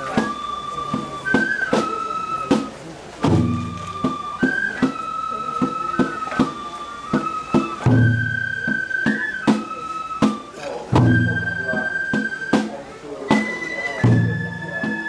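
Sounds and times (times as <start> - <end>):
flute playing long notes: 0.0 - 15.0
sharp percussion strikes: 7.2 - 12.7.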